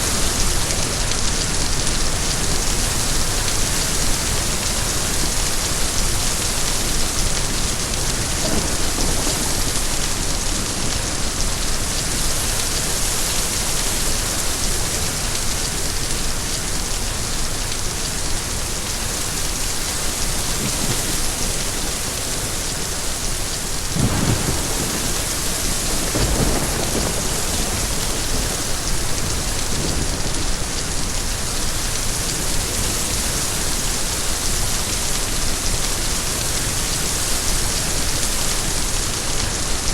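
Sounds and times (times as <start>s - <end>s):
steady rain falling: 0.0s - 39.9s
low thunder rumbling: 7.6s - 11.6s, 23.8s - 31.1s.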